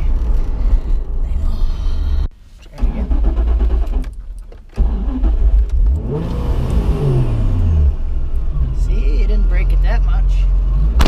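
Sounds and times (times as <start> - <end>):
car engine revving: 4.8 - 11.0.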